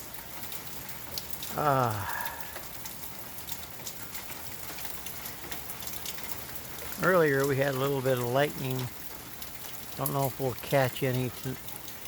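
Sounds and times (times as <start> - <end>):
rain pattering: 0.0 - 12.0
man saying ah: 1.5 - 2.4.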